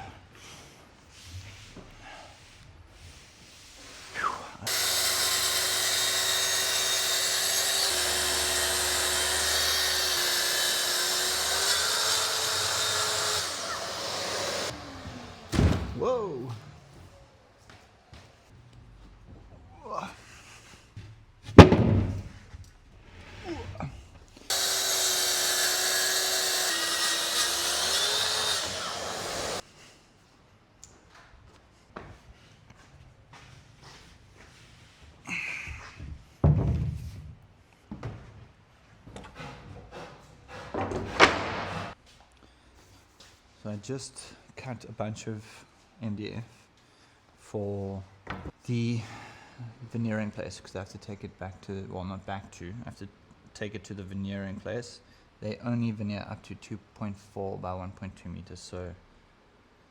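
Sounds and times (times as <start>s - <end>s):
power tool high whine: 4.7s - 15.5s, 24.5s - 29.6s.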